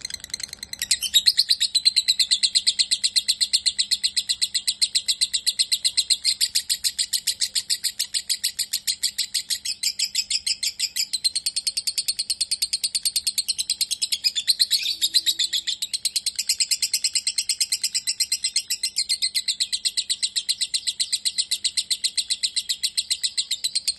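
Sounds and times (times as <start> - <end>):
lovebird chirping rapidly: 0.0 - 23.9.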